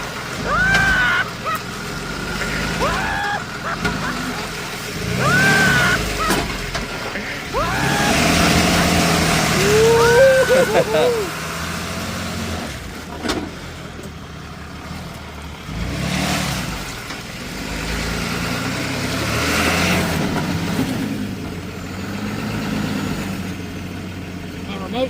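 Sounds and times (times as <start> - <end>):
vehicle engine revving: 0.0 - 24.6.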